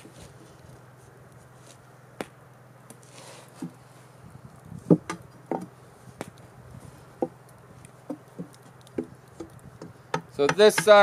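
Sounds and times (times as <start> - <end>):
wooden pieces knocking: 8.0 - 11.0.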